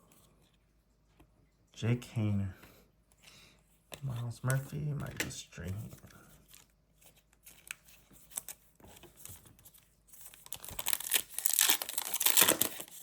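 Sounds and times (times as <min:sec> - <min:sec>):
cards ticking and rustling: 0:03.9 - 0:13.0
card pack tearing and crinkling: 0:10.2 - 0:13.0.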